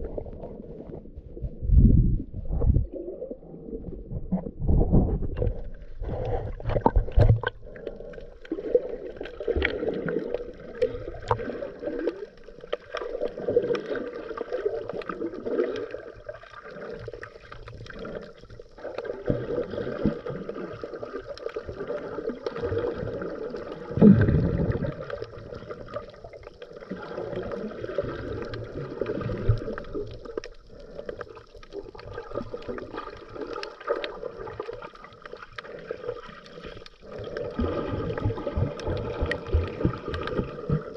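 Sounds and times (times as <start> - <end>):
bubbles gurgling underwater: 0.0 - 40.9
diver breathing through regulator: 4.6 - 9.0.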